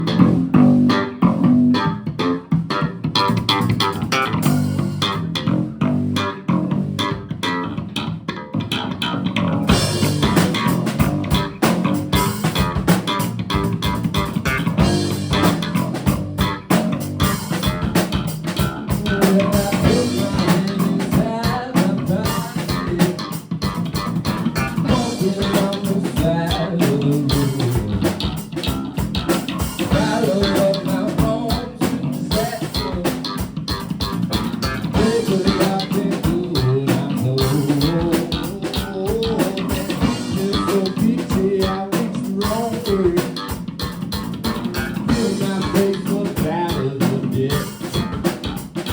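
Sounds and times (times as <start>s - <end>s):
drum kit: 0.0s - 8.1s, 9.4s - 48.9s
bass guitar: 0.0s - 48.9s
electric guitar: 0.0s - 48.9s
person singing: 18.9s - 23.4s, 24.8s - 28.0s, 29.9s - 33.4s, 35.0s - 43.6s, 45.1s - 48.1s.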